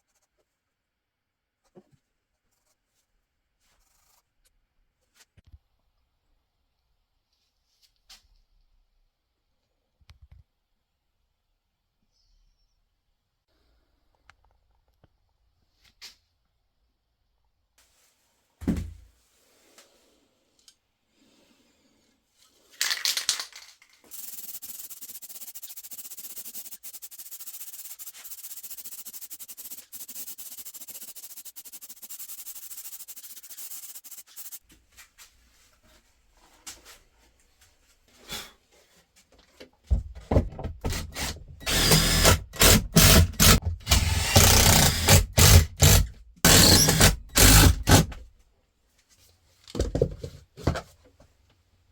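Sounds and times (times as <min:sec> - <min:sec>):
high rasping hiss on wood: 0:24.1 - 0:34.6
loud scraping strokes: 0:24.1 - 0:34.6.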